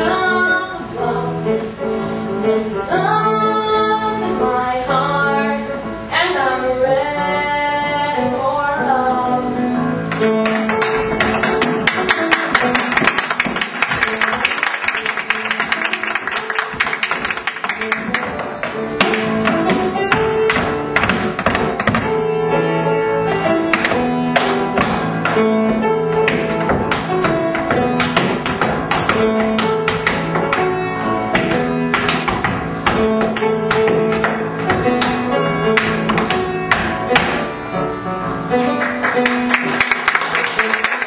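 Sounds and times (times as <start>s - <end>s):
instrumental music: 0.0s - 41.0s
tap shoes tapping: 10.1s - 22.2s, 23.7s - 37.5s.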